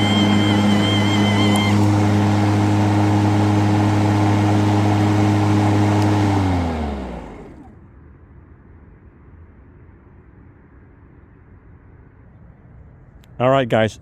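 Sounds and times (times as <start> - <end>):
lawn mower running: 0.0 - 7.8.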